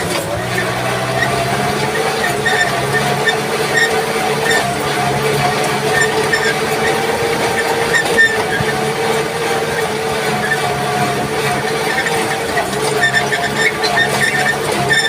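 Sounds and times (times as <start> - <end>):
short high squeaks: 0.0 - 15.0
tractor engine running: 0.0 - 15.0.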